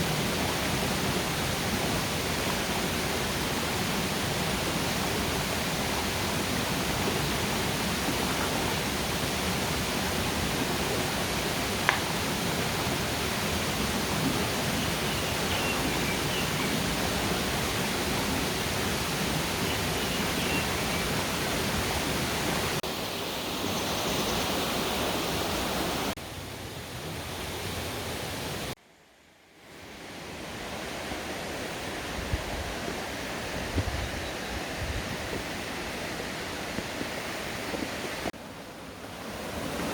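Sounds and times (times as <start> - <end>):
stream rushing over rocks: 0.0 - 28.8, 29.8 - 39.9.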